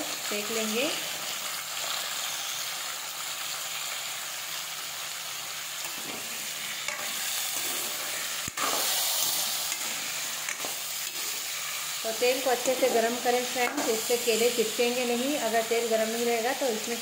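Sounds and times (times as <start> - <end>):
slices sizzling in hot oil: 0.0 - 17.0
metal spatula scraping: 5.8 - 14.1.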